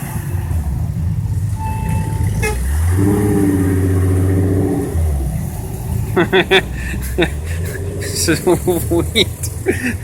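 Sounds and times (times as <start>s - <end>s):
car engine low drone: 0.0s - 10.0s
car traffic passing: 0.0s - 10.0s
car horn toot: 1.6s - 3.1s.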